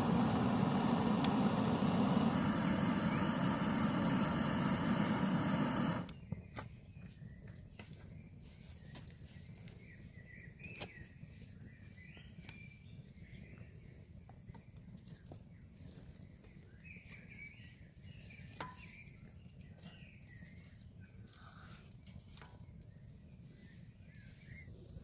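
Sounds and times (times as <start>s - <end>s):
low steady rumble: 0.0s - 6.1s.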